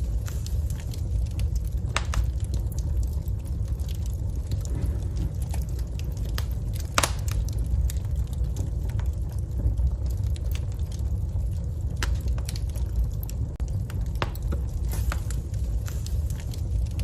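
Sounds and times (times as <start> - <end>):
crackles and pops of fire: 0.0 - 17.0
wood fire burning: 0.0 - 17.0.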